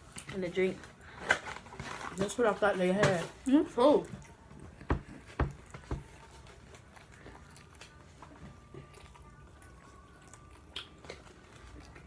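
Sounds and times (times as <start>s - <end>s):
people chewing: 3.4s - 12.0s.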